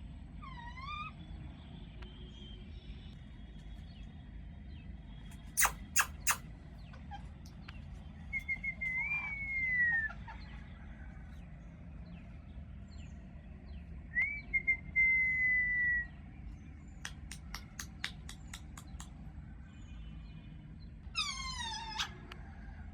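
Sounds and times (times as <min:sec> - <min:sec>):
parrot harsh squawk: 0:05.6 - 0:06.4, 0:21.2 - 0:22.2
parrot sharp clicks: 0:05.6 - 0:06.4, 0:17.0 - 0:19.1
parrot whistling: 0:05.6 - 0:06.4.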